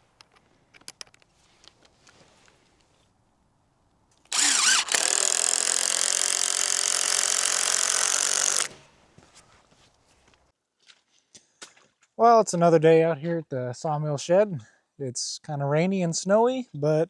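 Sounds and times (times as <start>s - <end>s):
handheld power tool running: 4.3s - 8.8s.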